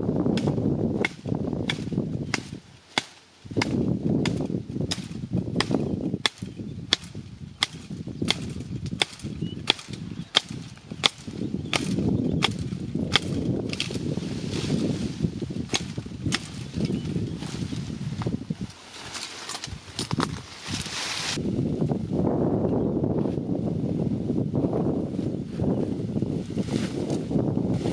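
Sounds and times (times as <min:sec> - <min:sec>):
chopping wood: 0:00.4 - 0:14.0, 0:15.7 - 0:16.6.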